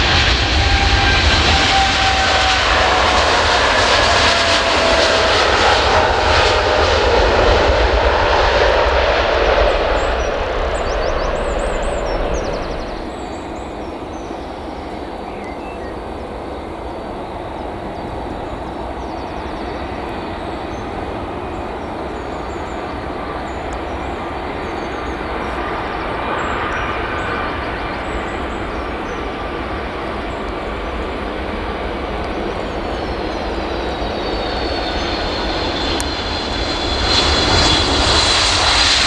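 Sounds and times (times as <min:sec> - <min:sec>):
distant jet engines rumbling: 0:00.0 - 0:39.0
birds chirping faintly: 0:08.7 - 0:16.3.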